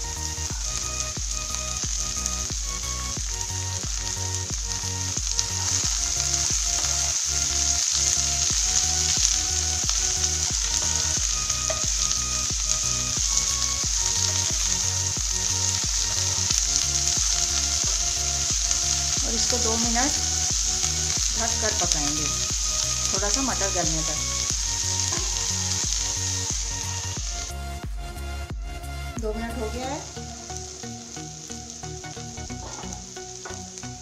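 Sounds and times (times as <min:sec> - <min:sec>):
vegetables sizzling in a frying pan: 0:00.0 - 0:27.6, 0:29.2 - 0:34.0
soft background music: 0:00.0 - 0:34.0.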